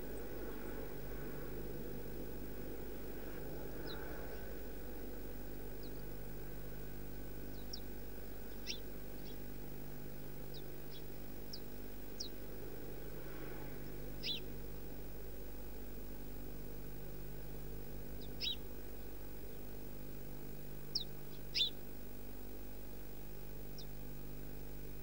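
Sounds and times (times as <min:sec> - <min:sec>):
low hum and hiss: 0:00.0 - 0:25.0
small birds chirping: 0:03.7 - 0:04.6, 0:05.7 - 0:06.3, 0:07.1 - 0:09.5, 0:10.4 - 0:12.5, 0:13.6 - 0:14.6, 0:18.1 - 0:19.7, 0:20.9 - 0:21.8, 0:23.7 - 0:24.0.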